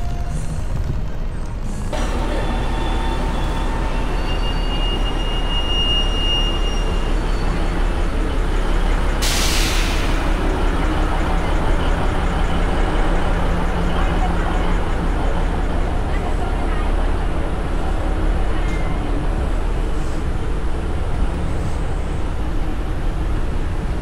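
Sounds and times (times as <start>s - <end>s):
train rumbling: 0.0s - 24.0s
thin high squeal: 2.3s - 7.7s.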